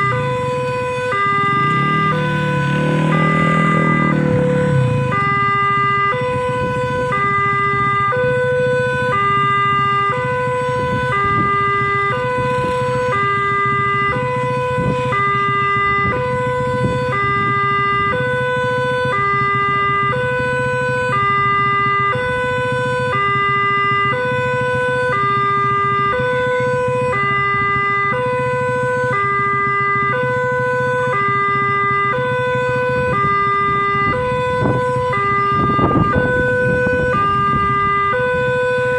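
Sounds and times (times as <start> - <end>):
level crossing two-tone alarm: 0.0 - 8.2.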